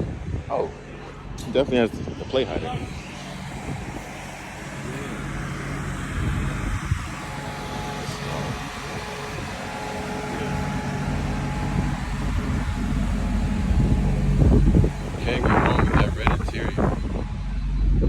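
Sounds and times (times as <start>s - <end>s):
car engine idling: 0.6s - 18.0s.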